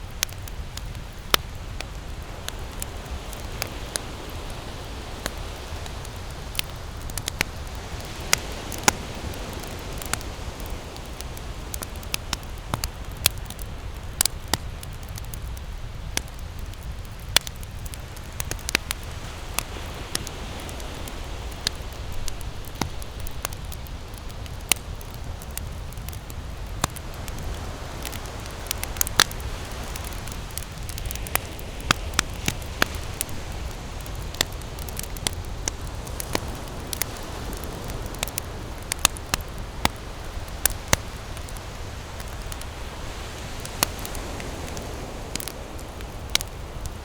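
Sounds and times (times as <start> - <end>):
campfire crackling and popping: 0.0 - 47.0.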